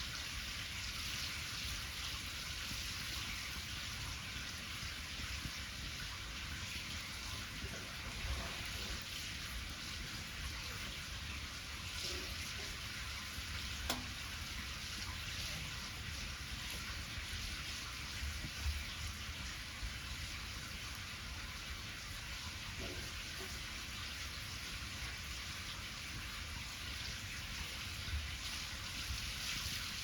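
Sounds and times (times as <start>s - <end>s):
batter sizzling in a pan: 0.0s - 30.0s
fire popping: 2.6s - 23.7s.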